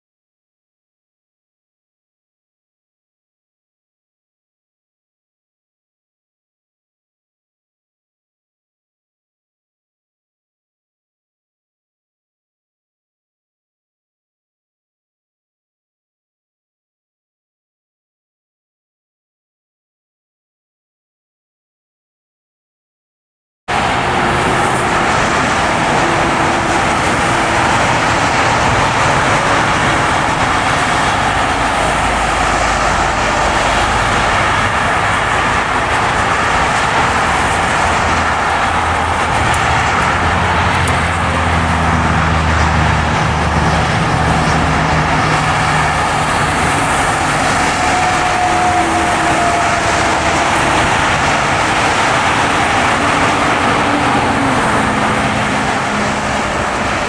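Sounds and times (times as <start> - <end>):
car engine hum: 23.7 - 57.0
tyre and road noise on snow: 23.7 - 57.0.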